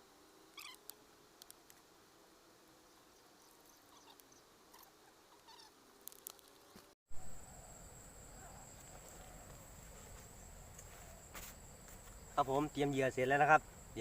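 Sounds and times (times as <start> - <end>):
high-pitched insect buzz: 0.0 - 14.0
small animal squeaky chirps: 0.6 - 0.9, 3.9 - 5.7.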